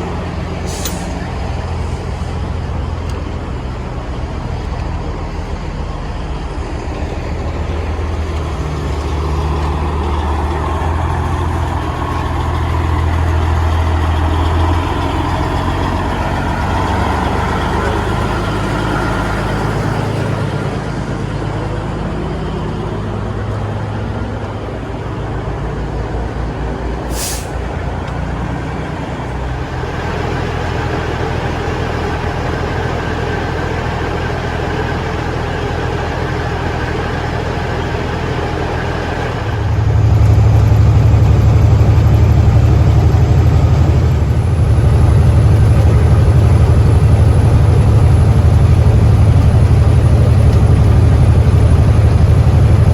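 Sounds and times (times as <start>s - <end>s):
truck diesel engine running: 0.0s - 52.9s
air brake hiss: 0.6s - 1.2s, 27.1s - 27.6s.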